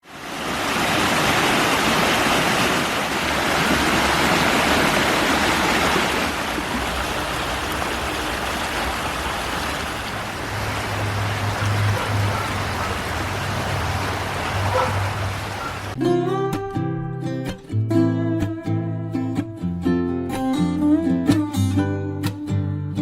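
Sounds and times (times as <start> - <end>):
rushing water: 0.0 - 16.0.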